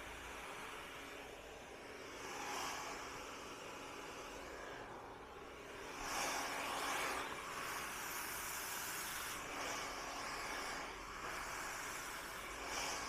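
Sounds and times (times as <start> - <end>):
hair dryer blowing: 0.0 - 13.0.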